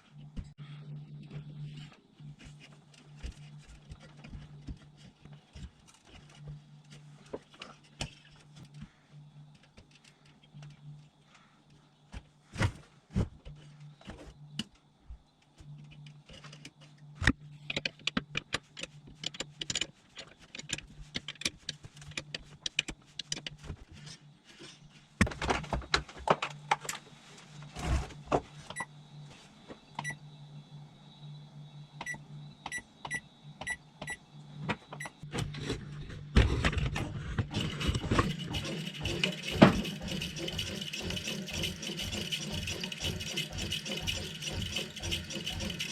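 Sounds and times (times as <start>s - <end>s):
bread maker motor hum: 21.9s - 45.9s.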